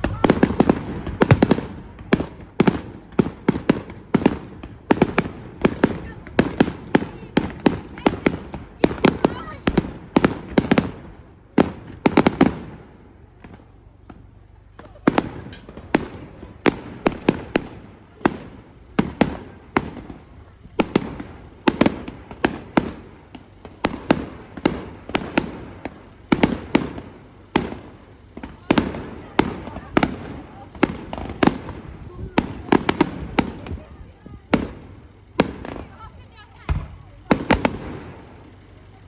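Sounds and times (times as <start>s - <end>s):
fireworks bangs and cracks: 0.0s - 39.0s.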